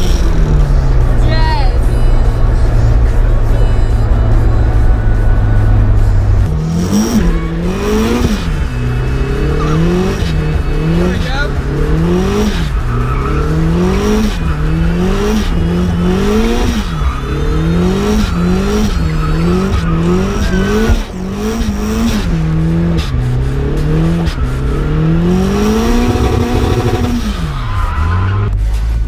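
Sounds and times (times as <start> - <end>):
car engine revving: 0.0 - 29.0
tyres squealing: 6.9 - 28.6.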